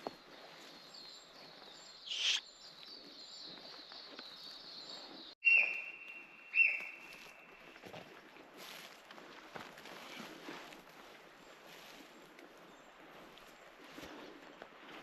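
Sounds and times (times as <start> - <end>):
birds chirping: 1.1 - 4.7
loud whistled notes: 2.1 - 2.4
steady high chirring: 2.1 - 2.4.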